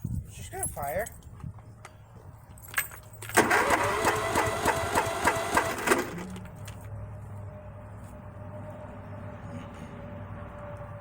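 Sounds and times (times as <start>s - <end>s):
tractor engine cranking: 2.7s - 6.9s.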